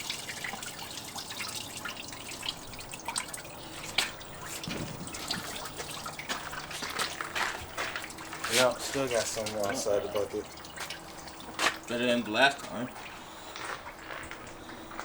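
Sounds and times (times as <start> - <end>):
liquid dripping into bucket: 0.0 - 15.0.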